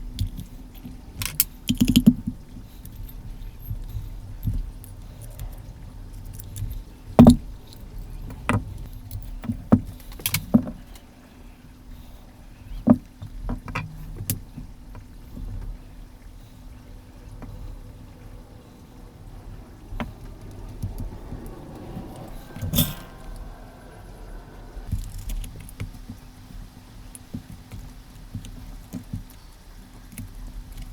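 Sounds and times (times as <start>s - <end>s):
small parts clicking and tapping: 0.0s - 11.0s
scraping: 16.3s - 24.9s.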